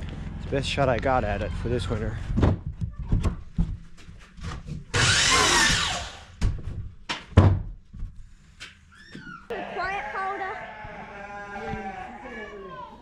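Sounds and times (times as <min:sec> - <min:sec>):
knocks and thuds: 0:02.2 - 0:04.0, 0:06.4 - 0:07.8.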